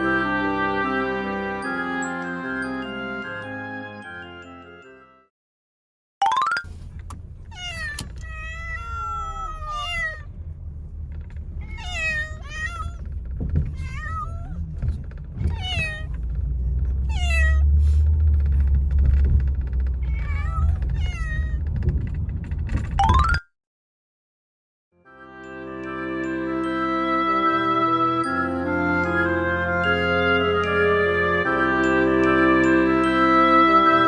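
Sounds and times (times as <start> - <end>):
road noise rumble: 6.6 - 23.0
cat meowing: 7.5 - 10.4, 11.6 - 13.1, 13.7 - 14.8, 15.4 - 16.2, 17.0 - 17.7, 20.0 - 21.6.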